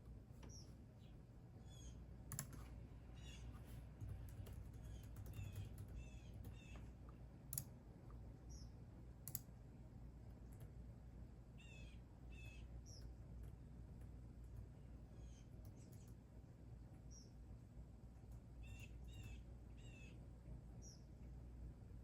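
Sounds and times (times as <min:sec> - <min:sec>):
low steady hum: 0:00.0 - 0:22.0
faint songbird chirping: 0:00.3 - 0:07.2, 0:08.4 - 0:08.8, 0:11.5 - 0:13.3, 0:14.8 - 0:16.3, 0:17.0 - 0:17.5, 0:18.3 - 0:21.3.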